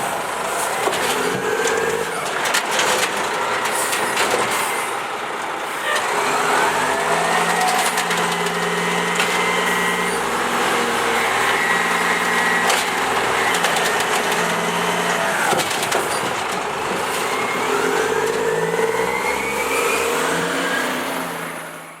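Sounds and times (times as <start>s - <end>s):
garbage truck engine revving: 0.0s - 22.0s.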